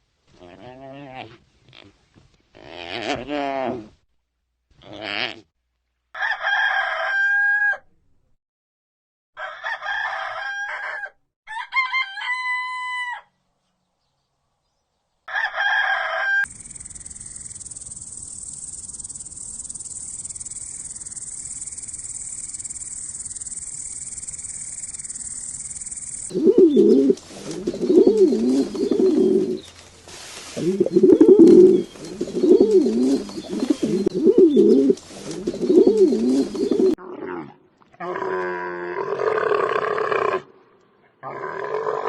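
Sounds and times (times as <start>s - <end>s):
rooster crowing: 6.2s - 7.8s, 9.4s - 13.3s, 15.3s - 16.5s
steady high-pitched hiss: 16.5s - 33.7s.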